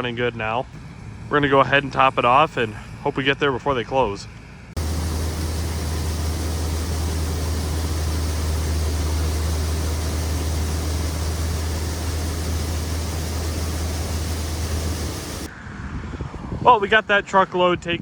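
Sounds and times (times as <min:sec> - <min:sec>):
heavy engine running: 0:04.8 - 0:15.5.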